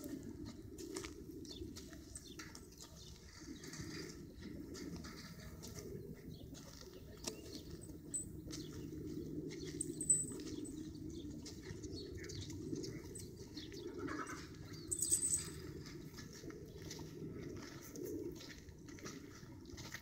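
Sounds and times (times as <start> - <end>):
birds chirping: 1.4 - 17.3
steady low rumble: 7.8 - 19.8.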